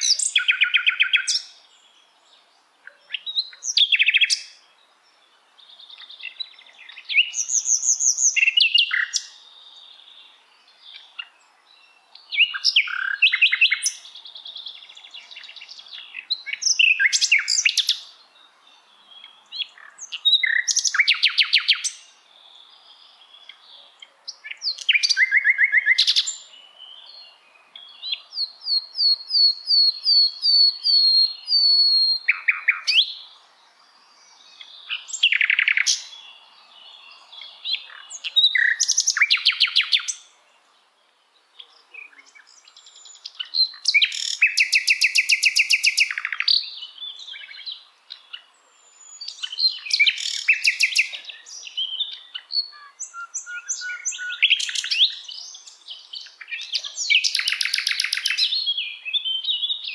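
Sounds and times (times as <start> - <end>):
bird singing high trills: 24.4 - 33.3, 42.0 - 59.9.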